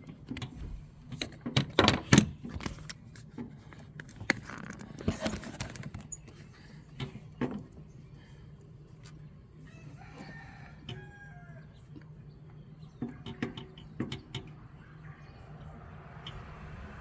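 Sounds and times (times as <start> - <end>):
rooster crowing: 9.7 - 11.9.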